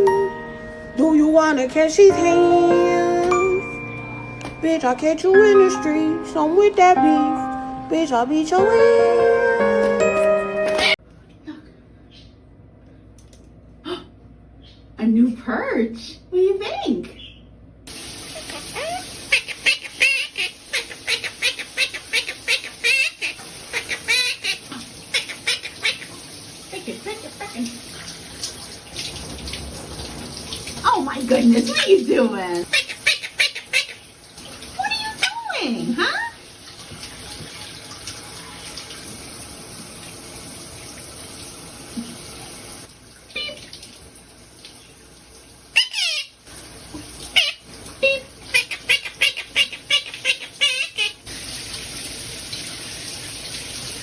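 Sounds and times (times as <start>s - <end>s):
running tap water: 17.9s - 54.0s
pet bird chirping and squawking: 18.3s - 26.2s, 32.7s - 34.1s, 45.8s - 46.4s, 47.3s - 47.7s, 48.5s - 51.2s.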